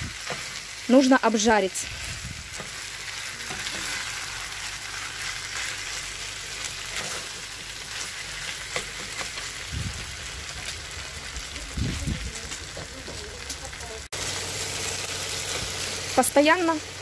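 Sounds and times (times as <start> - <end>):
food sizzling in a frying pan: 0.0 - 17.0
spatula scraping a pan: 1.9 - 4.5, 6.9 - 9.5.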